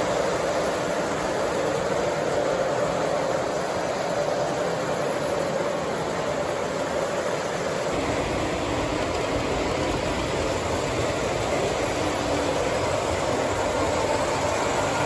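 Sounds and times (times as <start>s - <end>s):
model train on track: 0.0s - 15.0s.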